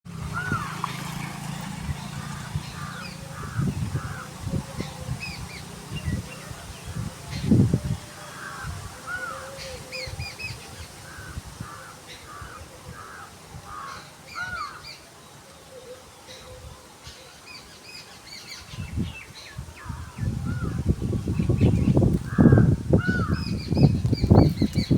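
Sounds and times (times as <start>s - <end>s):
bird calls: 0.3s - 24.9s.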